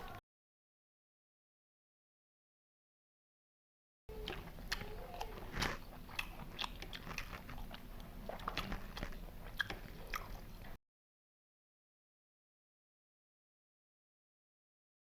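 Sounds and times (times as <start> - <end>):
person chewing crunchy food: 4.1 - 10.8.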